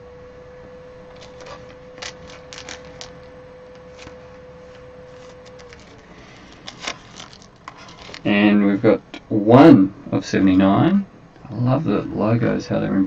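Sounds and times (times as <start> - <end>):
faint steady hum: 0.0 - 13.0
cards clicking and rustling: 1.1 - 8.3.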